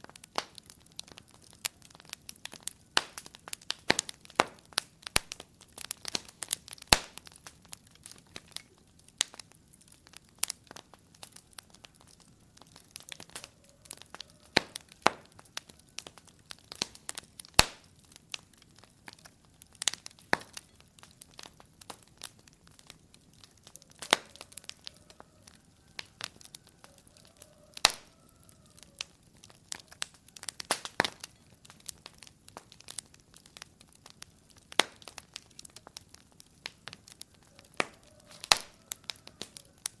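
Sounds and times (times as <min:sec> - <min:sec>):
wood fire crackling and popping: 0:00.0 - 0:40.0.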